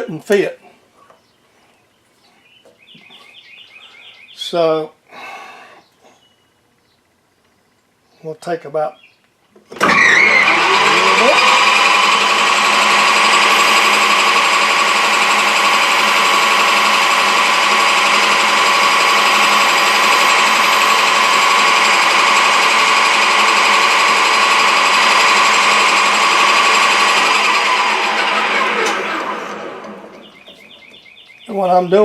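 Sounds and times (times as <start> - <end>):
metal lathe whirring: 9.8 - 30.3.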